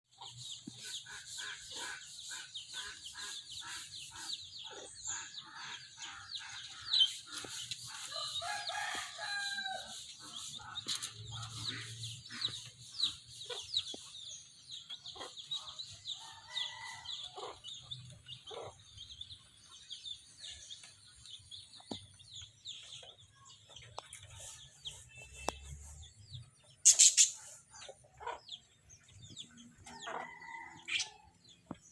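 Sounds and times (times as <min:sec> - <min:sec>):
myna chirping: 0:21.7 - 0:31.2.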